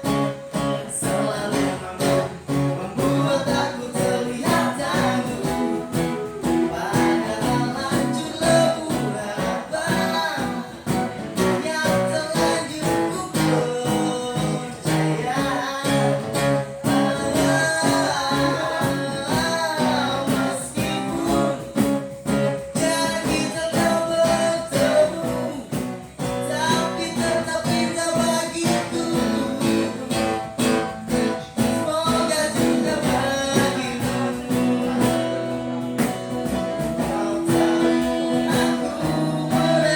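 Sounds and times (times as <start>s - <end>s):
acoustic guitar strumming: 0.0s - 39.9s
person singing: 0.0s - 39.9s.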